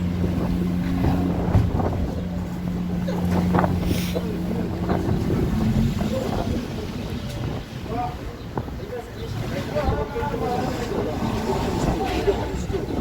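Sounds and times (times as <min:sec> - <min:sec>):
vehicle engine humming: 0:00.0 - 0:08.7
wind buffeting microphone: 0:00.0 - 0:13.0.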